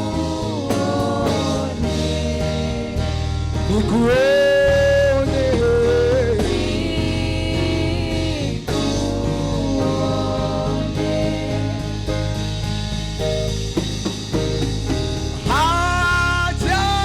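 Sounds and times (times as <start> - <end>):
sustained gospel vocal notes: 0.0 - 12.4
bass: 0.0 - 17.0
guitar accompaniment: 0.0 - 17.0
keyboard: 0.0 - 17.0.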